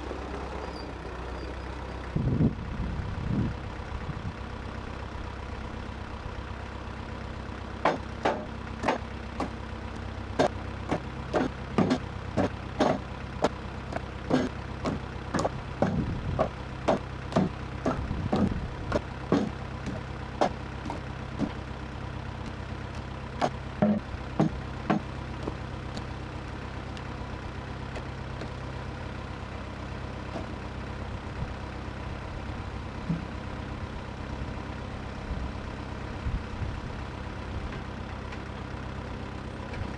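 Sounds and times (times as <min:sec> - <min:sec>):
engine idling: 0:00.0 - 0:39.9
sharp knocks and clanks: 0:07.8 - 0:09.6, 0:10.4 - 0:21.6, 0:22.4 - 0:28.6.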